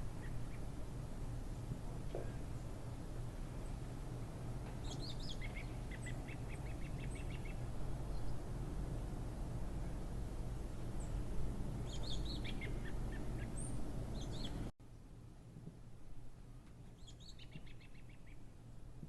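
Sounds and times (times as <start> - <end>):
small birds chirping: 0.2 - 0.8, 4.6 - 8.4, 11.0 - 14.7, 16.9 - 18.5.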